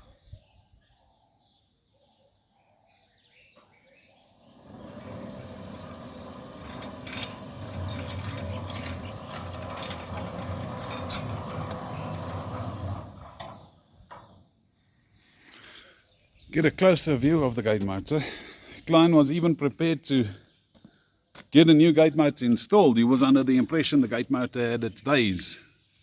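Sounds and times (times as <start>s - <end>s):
sliding gate motor running: 4.4s - 14.4s.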